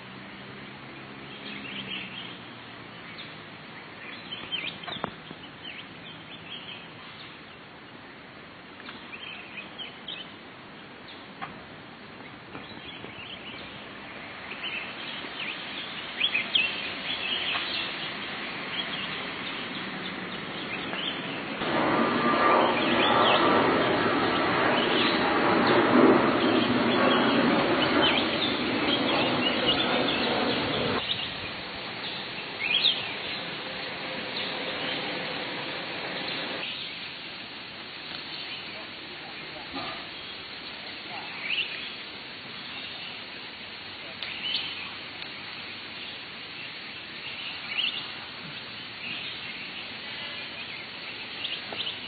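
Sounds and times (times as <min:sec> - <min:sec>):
small birds chirping: 0:00.0 - 0:11.5, 0:12.1 - 0:21.6, 0:22.2 - 0:52.0
steady rushing noise: 0:11.3 - 0:52.0.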